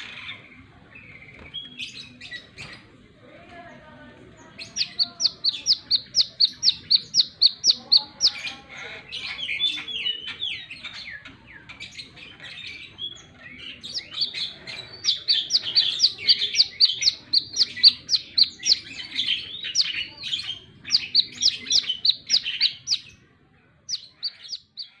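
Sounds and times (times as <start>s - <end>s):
bird singing sharp high chirps: 4.5s - 23.2s, 23.9s - 25.0s.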